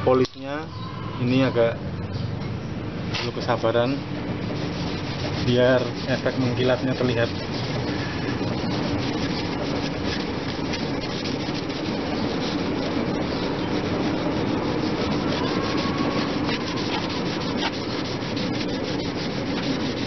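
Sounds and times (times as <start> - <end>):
hand rubbing metal pipe: 4.4 - 20.0.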